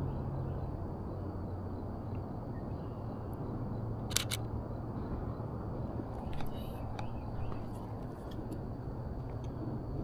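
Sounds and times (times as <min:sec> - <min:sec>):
steady low rumble: 0:00.0 - 0:10.0
camera shutter clicks: 0:04.1 - 0:04.4.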